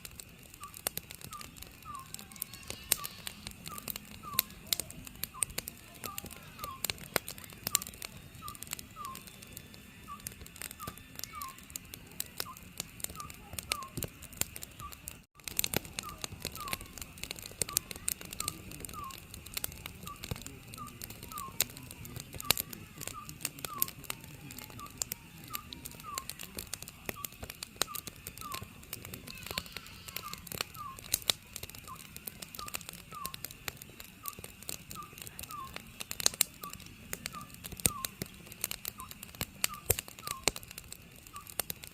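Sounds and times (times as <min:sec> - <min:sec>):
wood fire crackling: 0:00.0 - 0:41.9
owl hooting: 0:00.6 - 0:04.8, 0:10.0 - 0:11.7, 0:16.0 - 0:17.0, 0:18.4 - 0:19.2, 0:20.8 - 0:21.7, 0:27.1 - 0:31.2, 0:31.8 - 0:33.4, 0:34.2 - 0:35.8, 0:41.3 - 0:41.6.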